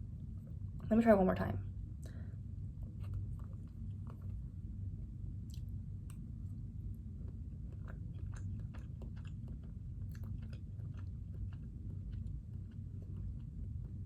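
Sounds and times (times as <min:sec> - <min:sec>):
steady low hum: 0:00.0 - 0:14.0
chewing noodles: 0:05.4 - 0:14.0
wet mouth clicks: 0:05.5 - 0:06.2.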